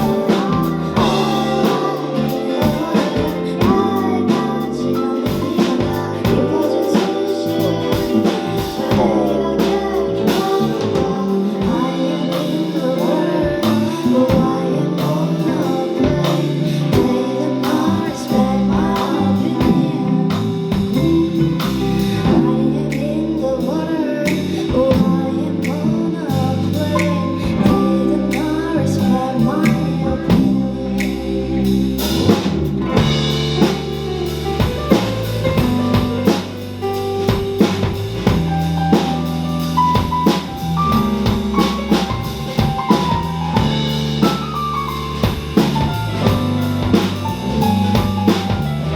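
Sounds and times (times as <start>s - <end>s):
steady drum beat: 0.0s - 23.0s, 24.2s - 48.9s
person singing: 0.0s - 36.9s
guitar: 0.0s - 48.9s.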